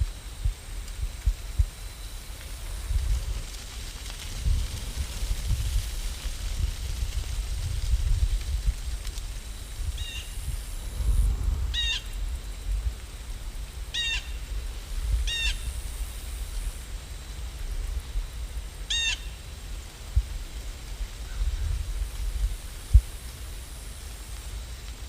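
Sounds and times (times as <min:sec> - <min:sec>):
steady low rumble: 0:00.0 - 0:18.9.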